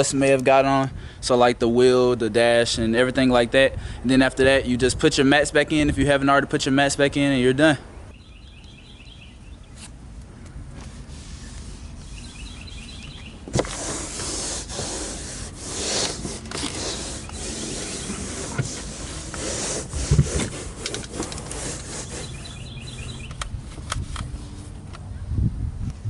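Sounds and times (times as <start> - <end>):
faint bird chirps: 8.1 - 9.8, 11.8 - 13.4, 22.1 - 23.4
rubbing and scuffing: 10.7 - 24.8.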